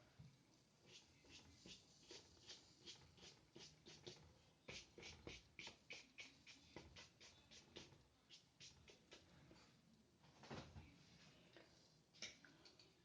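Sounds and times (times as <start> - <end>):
paintbrush strokes on paper: 0.8 - 9.6.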